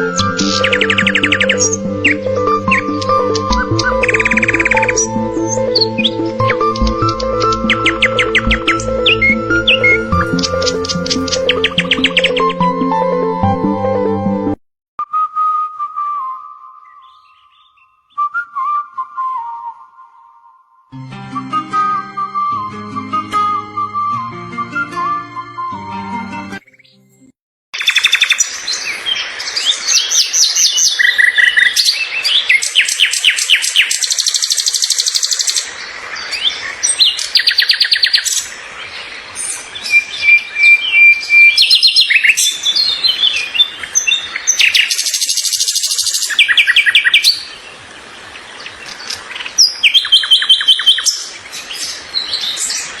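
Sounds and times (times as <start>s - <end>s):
songbirds chirping and trilling: 0.0s - 12.8s, 16.8s - 18.3s, 27.8s - 53.0s.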